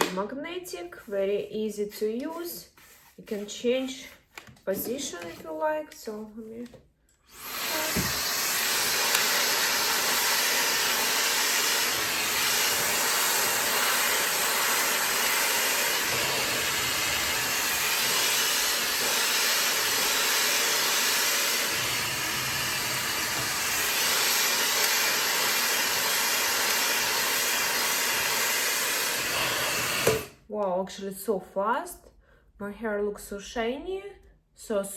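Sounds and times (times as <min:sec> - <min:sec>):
hair dryer blowing: 0:07.3 - 0:30.4.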